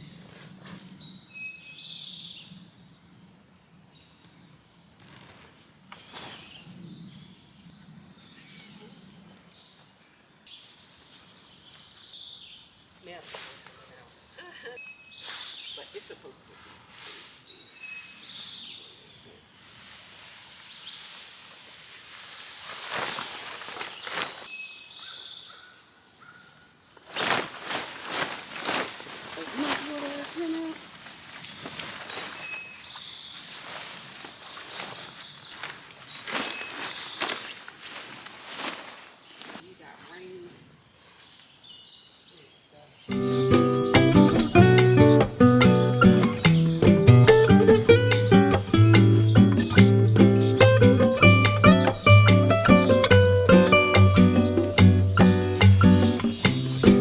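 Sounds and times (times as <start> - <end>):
rustling handling noises: 19.6 - 24.5, 26.9 - 40.2
birds chirping: 23.7 - 57.0
songbird whistling phrases: 41.8 - 44.7.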